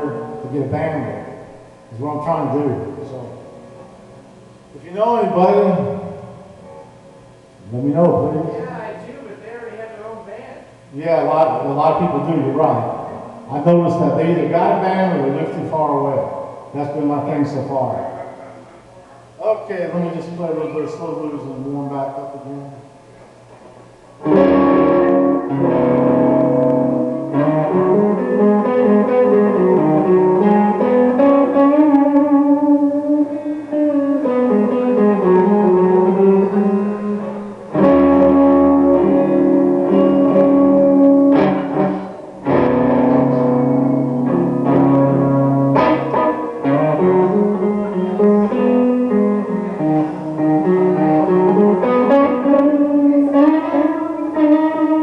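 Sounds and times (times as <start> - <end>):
slow blues guitar: 0.0 - 9.1, 20.6 - 55.0.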